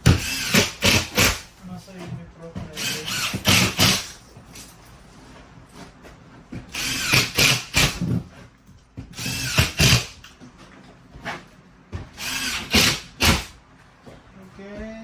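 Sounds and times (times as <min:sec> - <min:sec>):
power drill driving screws: 0:00.0 - 0:01.5, 0:02.8 - 0:04.2, 0:06.7 - 0:08.2, 0:09.1 - 0:10.3, 0:12.2 - 0:13.6.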